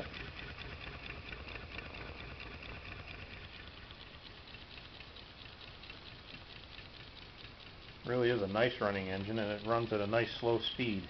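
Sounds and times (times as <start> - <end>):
small engine pattering clatter: 0.0 - 11.0.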